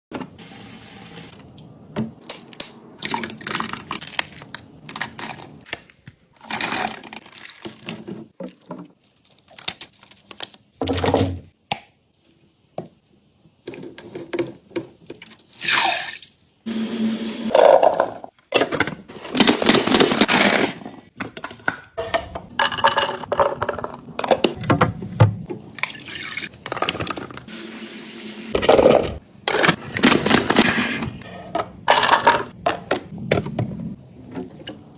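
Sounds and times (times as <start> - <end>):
tap water running: 15.6 - 17.5, 27.5 - 28.6.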